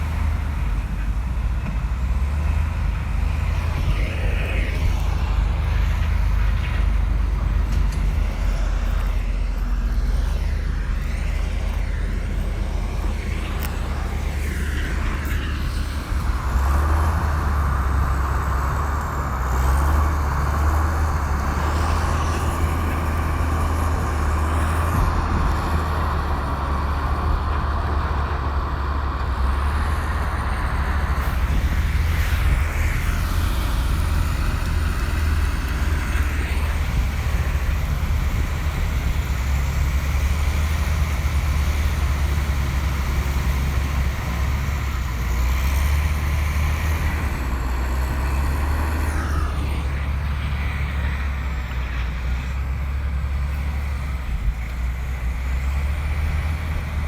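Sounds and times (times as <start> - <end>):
bulldozer diesel engine droning: 0.0 - 57.0.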